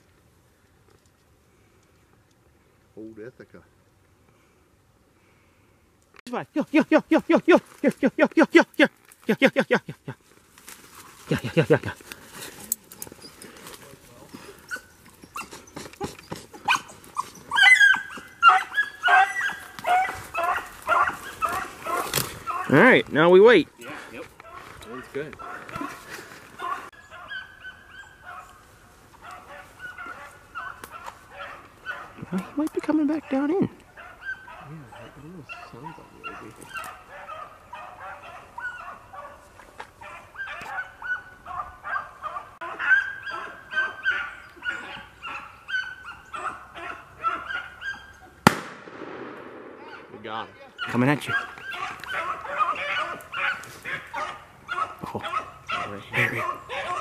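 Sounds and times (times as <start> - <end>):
hounds baying: 12.4 - 48.4, 49.8 - 57.0.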